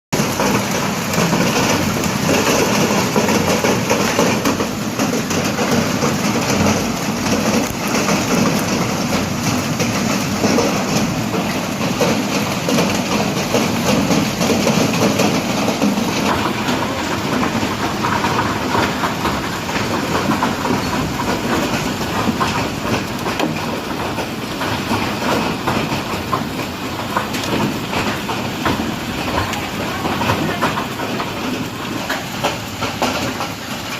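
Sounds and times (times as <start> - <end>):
hail falling: 0.2 - 33.9.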